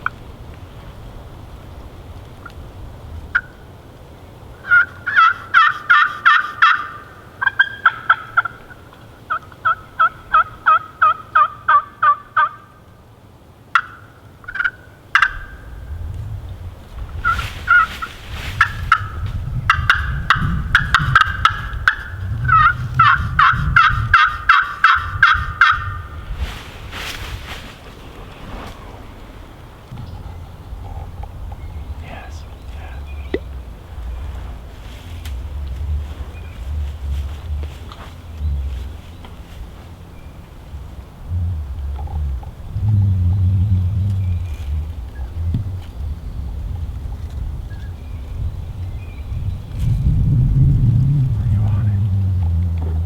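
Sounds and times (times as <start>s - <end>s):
turkeys yelping: 3.3s - 3.6s, 4.6s - 12.8s, 13.7s - 15.8s, 17.2s - 26.7s
low rumble: 15.4s - 53.0s
sharp rustles: 16.9s - 31.6s, 32.8s - 42.6s.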